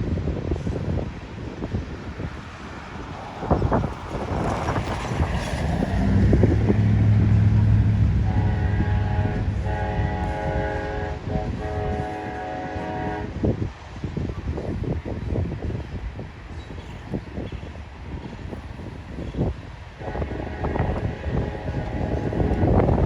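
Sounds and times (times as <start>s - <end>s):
diesel locomotive engine throb: 0.0s - 13.6s, 20.0s - 23.0s
locomotive air horn chord: 6.0s - 13.5s, 20.0s - 22.9s.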